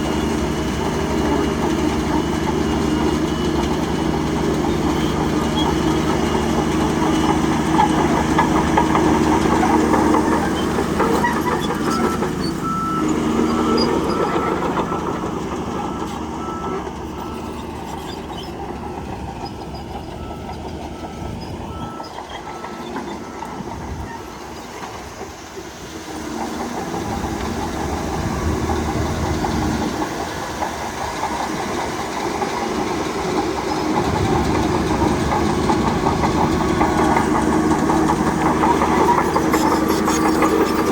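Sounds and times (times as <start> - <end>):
heavy diesel machinery engine: 0.0 - 40.9
high repeated reversing beep: 11.8 - 18.6, 19.6 - 24.3.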